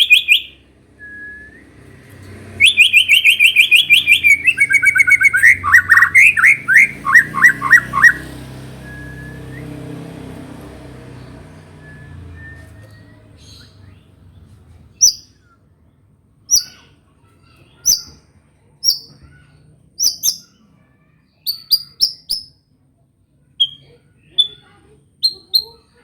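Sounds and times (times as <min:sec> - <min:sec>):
bird giving sharp high chirps: 0:00.0 - 0:00.6, 0:02.5 - 0:09.7, 0:15.0 - 0:15.5, 0:16.5 - 0:16.9, 0:17.8 - 0:20.6, 0:21.4 - 0:22.6, 0:23.6 - 0:25.8.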